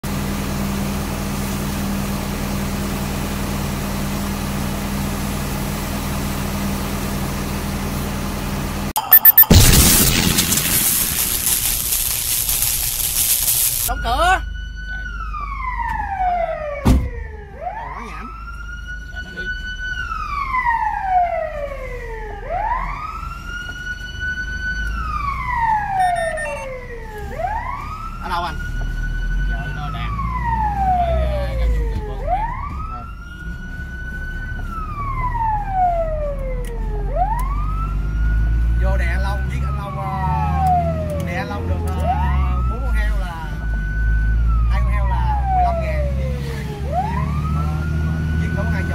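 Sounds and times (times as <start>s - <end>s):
low rumble of moving truck: 0.0s - 8.9s, 14.0s - 48.9s
fire engine siren wailing: 9.0s - 48.9s
even hiss: 9.5s - 13.9s.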